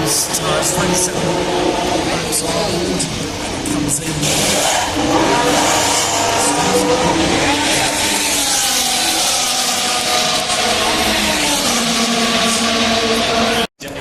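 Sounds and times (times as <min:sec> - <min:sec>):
racing car engines at speed: 0:00.0 - 0:14.0.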